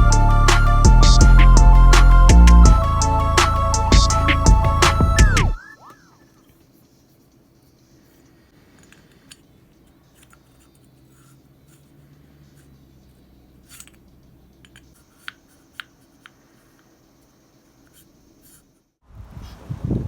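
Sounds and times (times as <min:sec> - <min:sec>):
faint scraping and rubbing: 0:05.9 - 0:20.0.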